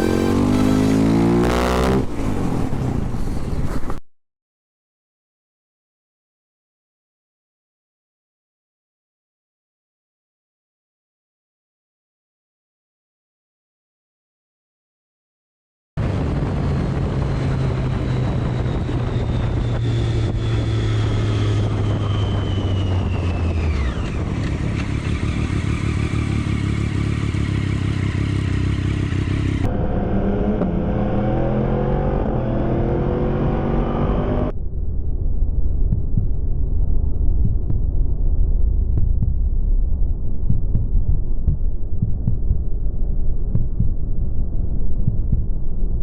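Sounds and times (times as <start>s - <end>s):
motorcycle engine running: 0.0s - 2.1s, 16.0s - 34.5s
engine revving up: 0.0s - 2.8s, 17.0s - 34.5s
road and wind noise: 0.0s - 4.0s, 16.0s - 46.0s
whine falling in pitch: 16.0s - 24.3s.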